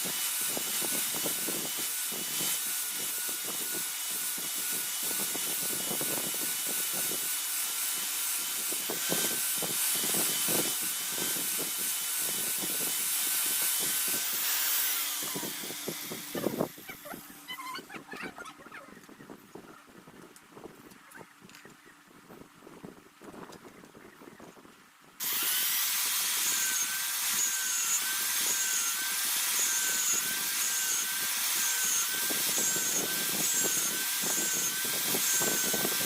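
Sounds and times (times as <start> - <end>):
electric grinder grinding blade: 0.0 - 18.1, 25.2 - 36.0.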